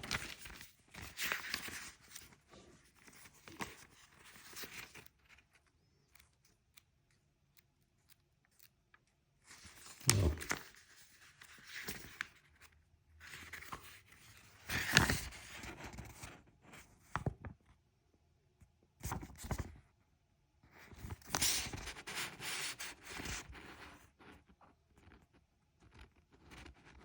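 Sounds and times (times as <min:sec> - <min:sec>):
paper pages rustling: 0:00.0 - 0:06.9, 0:09.4 - 0:17.3, 0:20.8 - 0:24.1.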